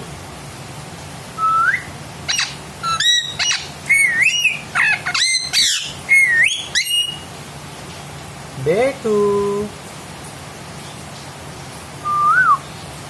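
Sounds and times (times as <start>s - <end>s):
parrot whistling and chirping: 1.4s - 7.3s, 12.0s - 12.7s.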